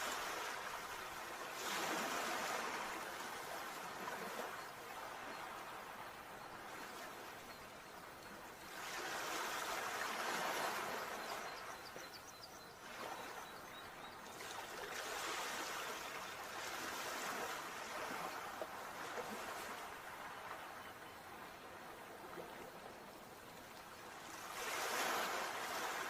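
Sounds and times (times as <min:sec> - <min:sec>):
sea waves washing in: 0:24.2 - 0:26.0.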